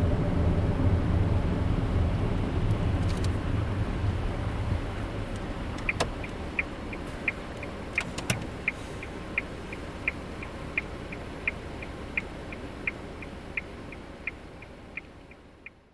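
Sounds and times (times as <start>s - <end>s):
car running and road noise: 0.0s - 15.9s
turn signal clicking: 2.6s - 3.4s, 4.7s - 15.8s.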